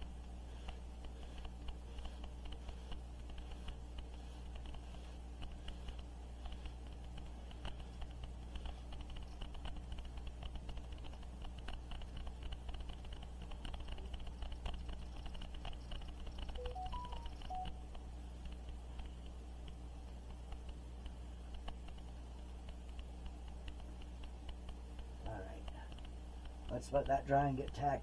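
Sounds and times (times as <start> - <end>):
steady low hum: 0.0 - 28.0
quick electronic beeps: 16.6 - 17.7
light clicks and taps: 18.4 - 27.8.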